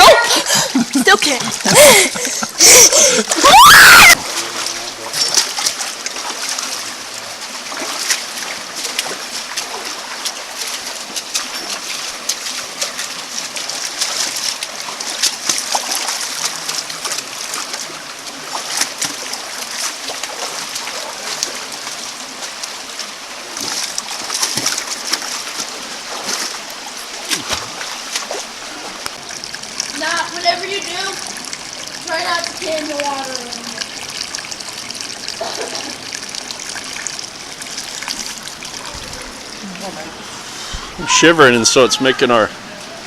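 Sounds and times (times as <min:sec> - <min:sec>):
creek water running and splashing: 0:00.0 - 0:43.0.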